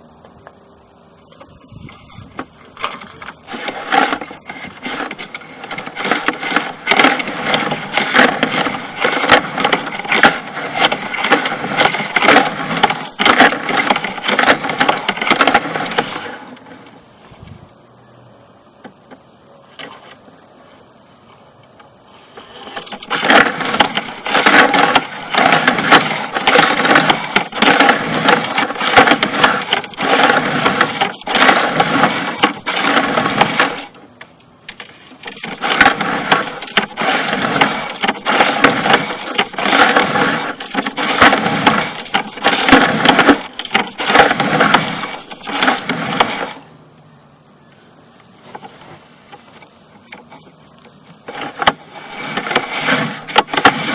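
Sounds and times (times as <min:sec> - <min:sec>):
camera cable rattling in pipe: 0:01.4 - 0:16.4, 0:22.7 - 0:33.9, 0:34.7 - 0:46.6.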